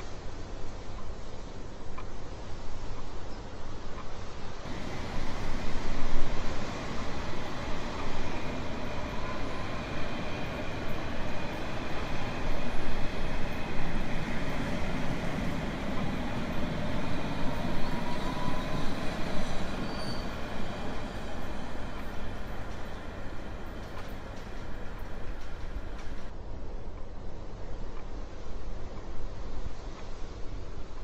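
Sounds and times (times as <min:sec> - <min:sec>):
train rumbling on rails: 0:00.0 - 0:31.0
high wheel squeals: 0:17.6 - 0:22.4.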